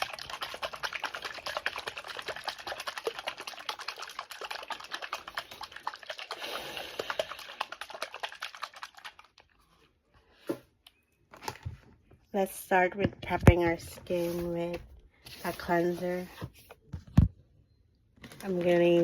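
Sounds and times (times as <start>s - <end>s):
bottle being shaken: 0.0s - 9.6s.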